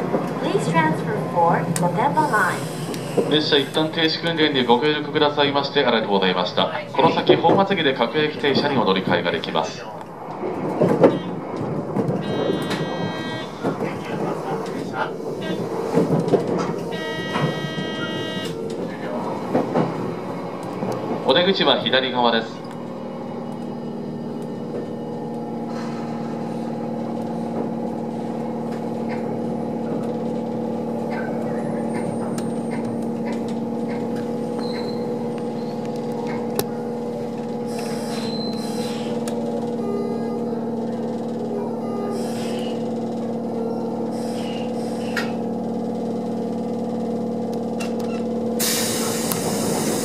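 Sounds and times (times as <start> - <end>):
train cab hum and running noise: 0.0 - 50.0.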